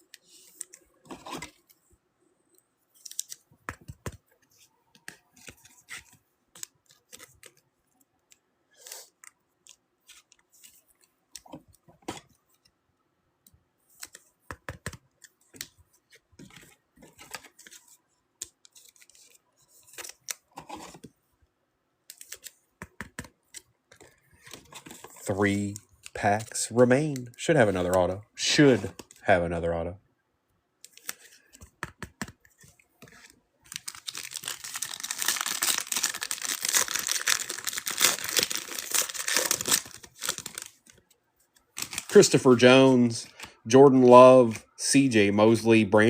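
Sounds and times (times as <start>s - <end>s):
cards and wrapper rustling: 2.9s - 7.6s, 30.9s - 43.6s.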